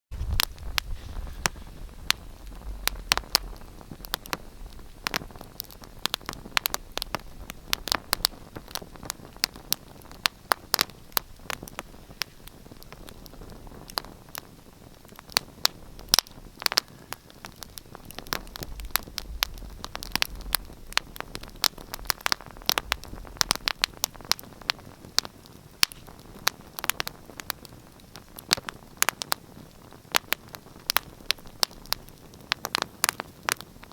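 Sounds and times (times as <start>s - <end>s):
low rumble: 0.1s - 5.1s, 18.3s - 24.0s
wood fire crackling: 0.1s - 33.9s.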